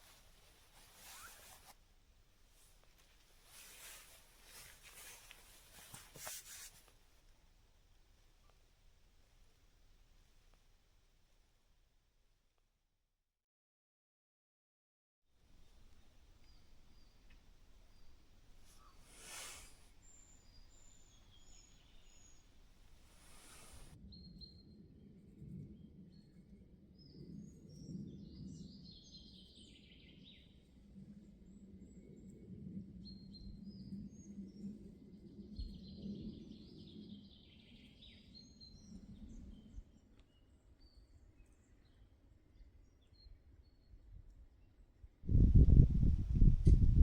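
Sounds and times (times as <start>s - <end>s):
songbirds chirping: 15.5s - 24.5s.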